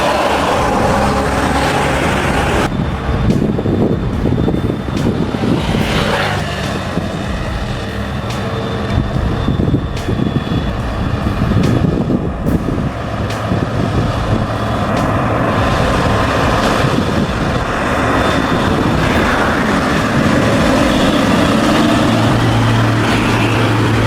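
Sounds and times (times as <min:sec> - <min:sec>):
heavy truck engine running: 0:00.0 - 0:24.0.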